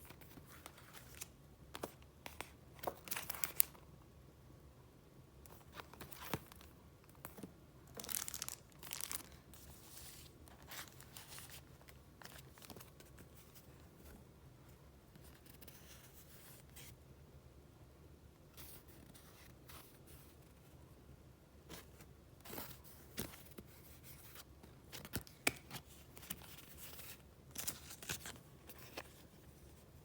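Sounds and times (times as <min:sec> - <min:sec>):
pages flipping: 0:00.2 - 0:03.8, 0:05.5 - 0:13.3, 0:24.9 - 0:29.2
paper rustling: 0:05.5 - 0:13.7.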